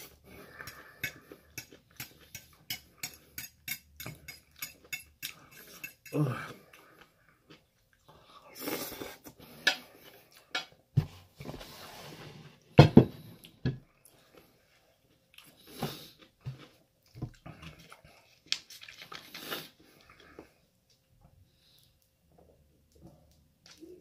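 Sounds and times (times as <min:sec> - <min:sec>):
person chewing food: 0:00.0 - 0:10.7, 0:13.4 - 0:21.1
fork clicking on plate: 0:00.7 - 0:06.2.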